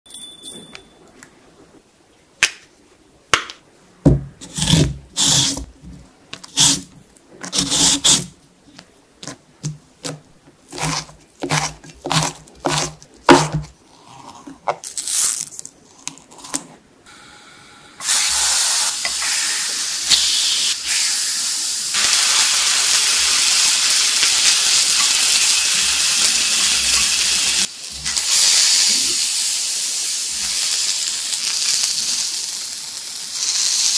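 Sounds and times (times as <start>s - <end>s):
knocks on a cutting board: 4.1s - 4.3s
food sizzling in a pan: 18.0s - 33.9s.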